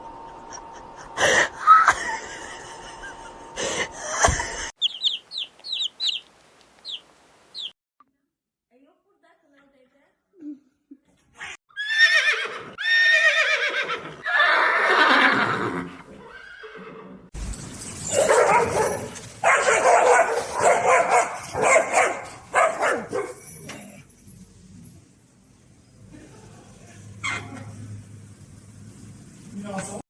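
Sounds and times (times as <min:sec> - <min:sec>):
farm animal calling loudly: 0:04.8 - 0:07.7.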